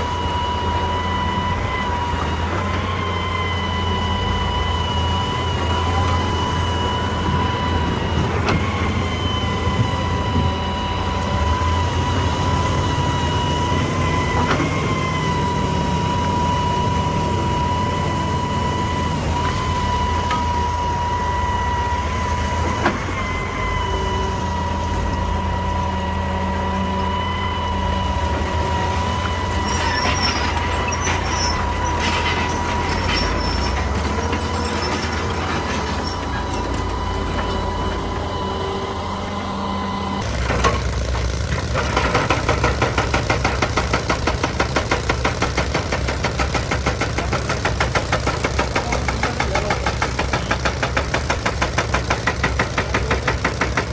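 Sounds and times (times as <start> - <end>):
excavator engine drone: 0.0 - 53.9
high whine: 15.4 - 40.8.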